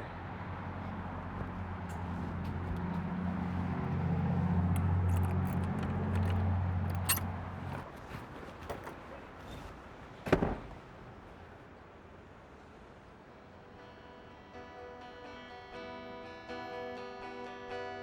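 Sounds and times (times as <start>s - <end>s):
vehicle engine humming: 0.0s - 11.6s
light clicks and jangling: 1.4s - 9.7s.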